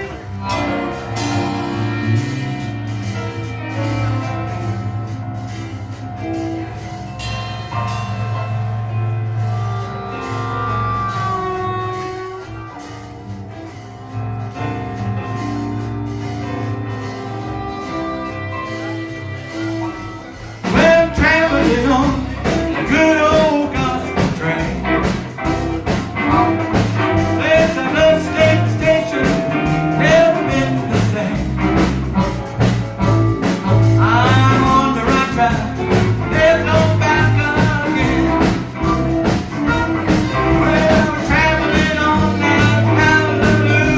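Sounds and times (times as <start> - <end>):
blues band with guitar: 0.0 - 43.9
person singing: 18.5 - 32.3, 33.6 - 43.9.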